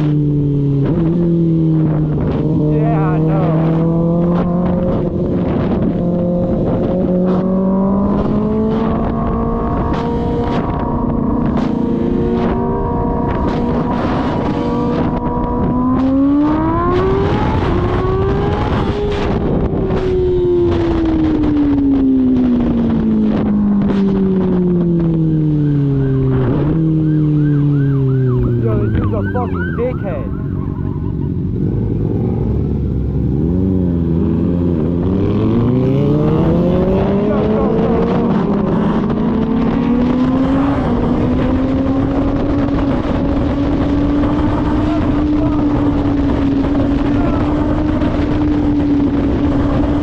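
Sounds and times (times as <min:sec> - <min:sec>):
motorcycle engine: 0:00.0 - 0:50.0.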